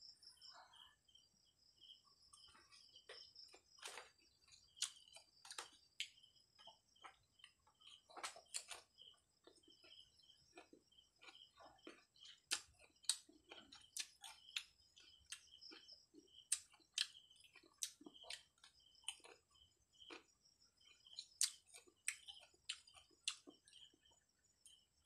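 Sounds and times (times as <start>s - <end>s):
crisp chewing crunches: 3.1s - 23.9s.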